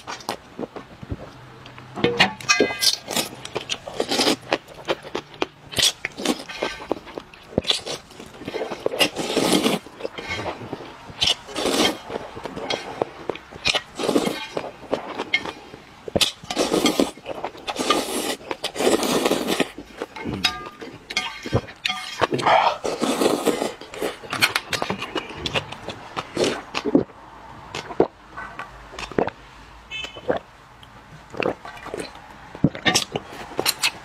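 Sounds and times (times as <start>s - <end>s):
utensils clinking against bowl: 2.0s - 3.4s, 20.0s - 23.0s
chewing: 2.8s - 29.4s, 31.2s - 34.0s
wet slurping: 7.6s - 10.6s.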